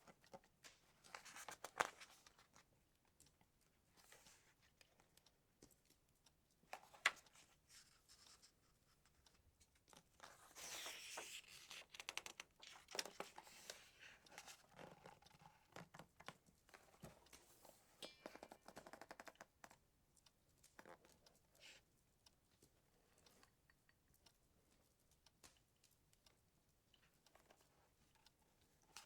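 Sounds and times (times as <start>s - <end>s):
book pages rustling and turning: 0.0s - 3.4s, 4.0s - 5.2s, 6.7s - 17.9s.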